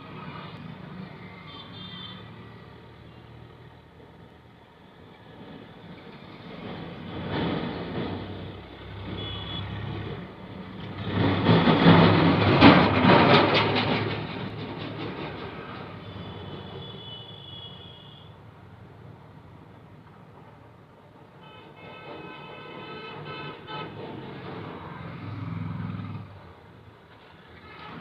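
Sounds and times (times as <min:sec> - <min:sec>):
vehicle passing by: 0:24.5 - 0:26.5.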